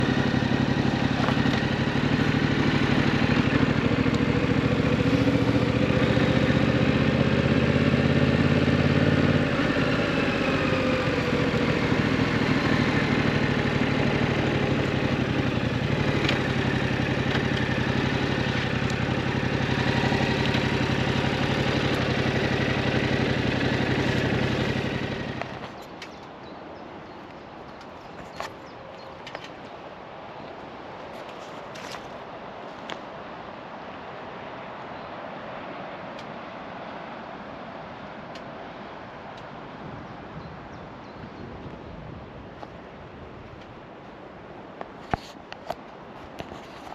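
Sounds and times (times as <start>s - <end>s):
motorcycle engine idling: 0.0s - 26.6s.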